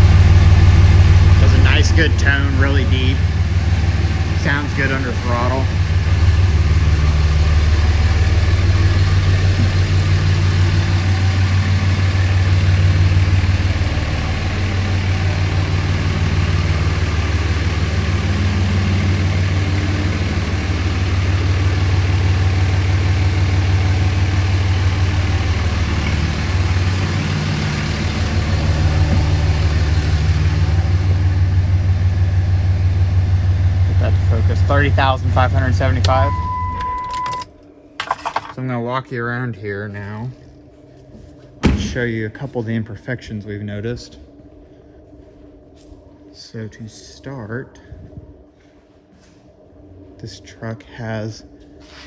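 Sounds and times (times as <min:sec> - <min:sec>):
diesel engine idling: 0:00.0 - 0:37.5.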